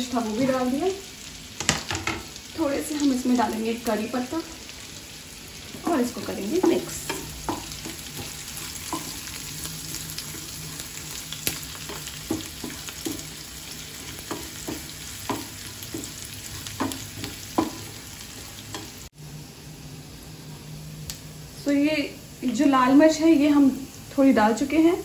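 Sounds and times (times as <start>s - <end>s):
food sizzling in ghee: 0.0s - 25.0s
wooden spatula scraping a pan: 5.7s - 19.0s.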